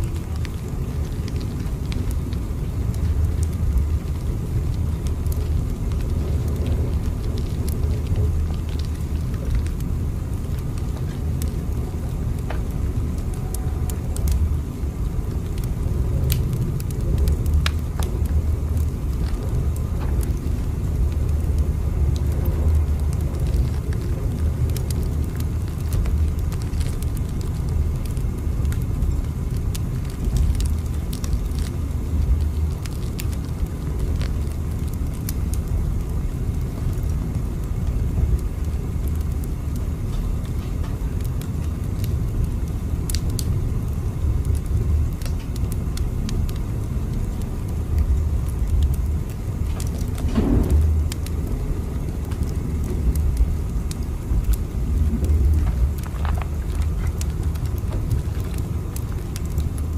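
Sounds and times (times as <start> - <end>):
faint clicks and ticks: 0.0 - 43.6, 44.2 - 59.9
train rumbling: 10.4 - 24.6, 49.7 - 58.5.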